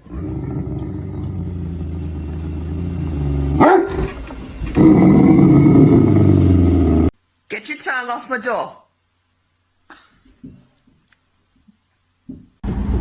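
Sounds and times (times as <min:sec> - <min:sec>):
dog growling: 0:00.0 - 0:07.1
dog yelping: 0:03.6 - 0:05.3.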